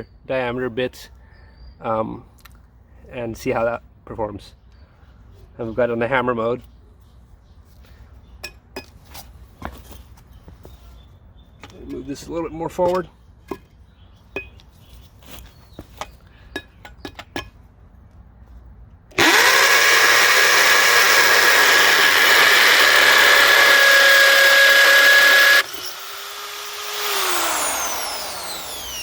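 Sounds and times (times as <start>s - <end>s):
hammer drill boring into block: 19.2s - 29.0s.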